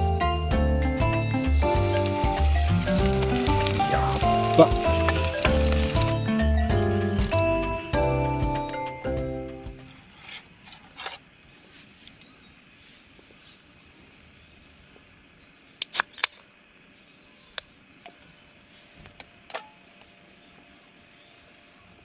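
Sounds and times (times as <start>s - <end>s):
music: 0.0s - 10.0s.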